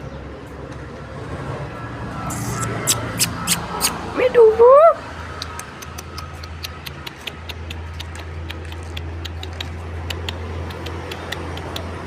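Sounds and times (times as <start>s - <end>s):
light sharp clicks: 5.3s - 12.0s.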